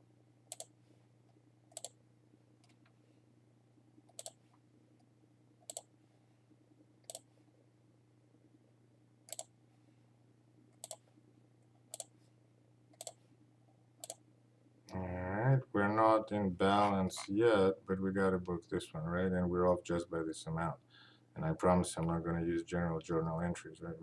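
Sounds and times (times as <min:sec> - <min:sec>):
faint low hum: 0:00.0 - 0:24.0
computer mouse clicking: 0:00.5 - 0:00.8, 0:01.7 - 0:02.0, 0:04.1 - 0:04.4, 0:05.6 - 0:05.9, 0:07.0 - 0:07.3, 0:09.3 - 0:09.5, 0:10.8 - 0:11.0, 0:11.9 - 0:12.2, 0:12.9 - 0:13.2, 0:14.0 - 0:14.2.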